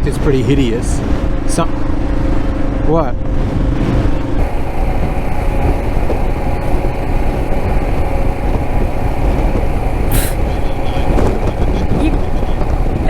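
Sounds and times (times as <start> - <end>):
motorcycle engine running: 0.0 - 13.0
wind rumble on microphone: 0.0 - 13.0
brief hiss: 10.1 - 10.4.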